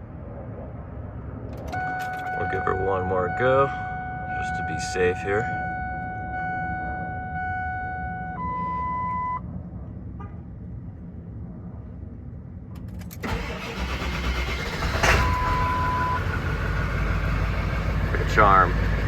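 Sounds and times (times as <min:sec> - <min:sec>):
diesel engine cranking and starting: 0:01.5 - 0:02.6, 0:12.8 - 0:19.0.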